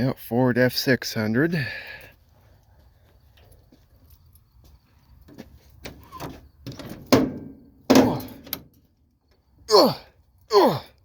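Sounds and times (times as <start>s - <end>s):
truck door handle and latch clunking: 5.9s - 8.8s.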